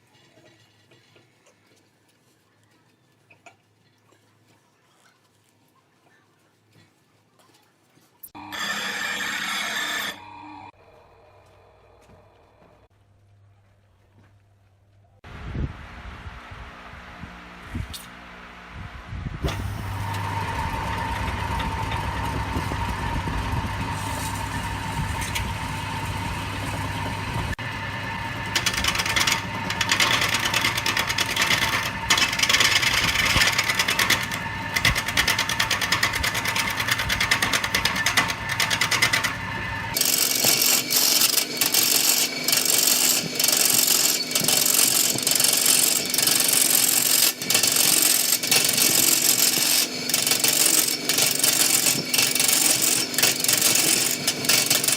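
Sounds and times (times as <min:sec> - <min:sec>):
wood lathe motor whine: 0:08.4 - 0:12.8, 0:19.5 - 0:54.9
turning tool scraping wood: 0:19.5 - 0:54.9.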